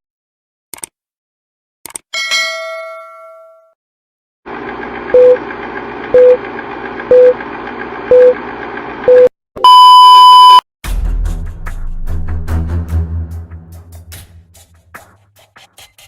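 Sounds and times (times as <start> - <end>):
longer higher beep: 9.1 - 10.6
short loud beeps: 9.1 - 10.6
music: 10.8 - 16.0.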